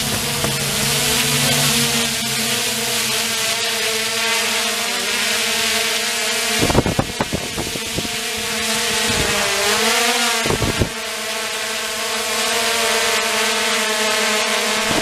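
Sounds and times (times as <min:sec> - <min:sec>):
wind noise: 0:00.0 - 0:01.2, 0:06.5 - 0:09.8, 0:10.4 - 0:11.0, 0:14.8 - 0:15.0
car engine running: 0:00.0 - 0:04.0.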